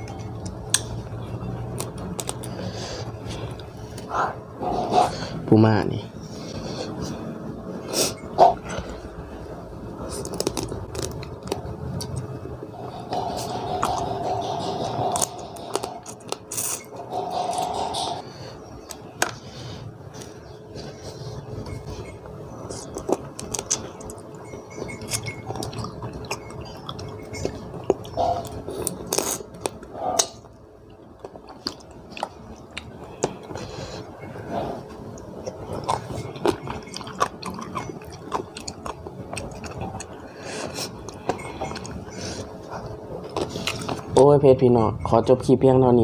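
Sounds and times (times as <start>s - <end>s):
faint steady hum: 0.0s - 46.0s
person chewing and crunching: 1.6s - 5.2s, 10.0s - 12.4s, 13.0s - 18.2s, 20.2s - 44.2s.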